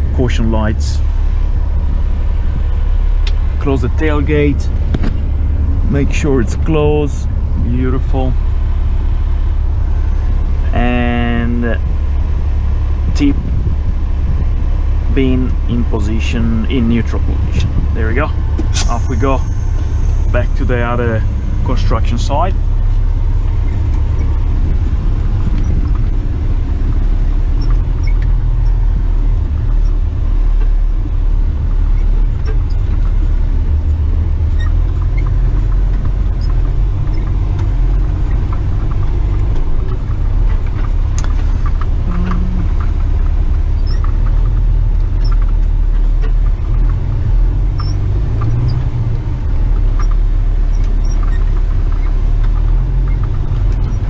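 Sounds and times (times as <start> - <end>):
truck diesel engine rumbling: 0.0 - 54.0
light clicks and rattles: 23.4 - 54.0.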